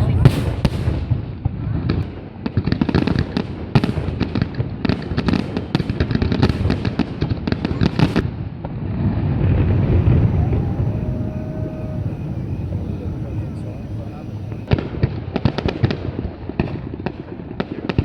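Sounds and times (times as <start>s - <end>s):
fireworks cracking and banging: 0.0s - 8.2s, 9.4s - 14.7s
low rumble of fireworks bursts: 0.0s - 18.0s.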